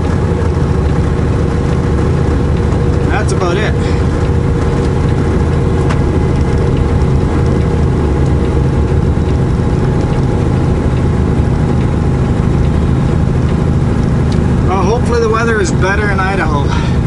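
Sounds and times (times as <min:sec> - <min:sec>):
diesel truck engine running: 0:00.0 - 0:17.0
road noise: 0:00.0 - 0:17.0.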